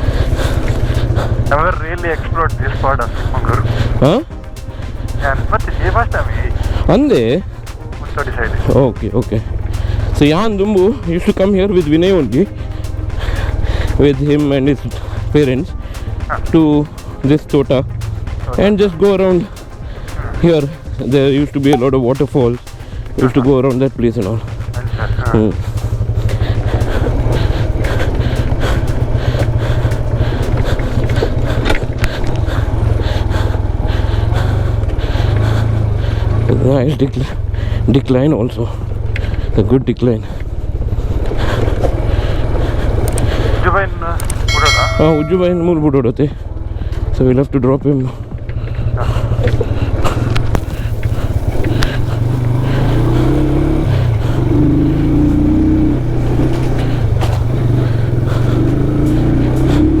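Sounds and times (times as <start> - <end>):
motorcycle engine running at low revs: 0.0 - 60.0.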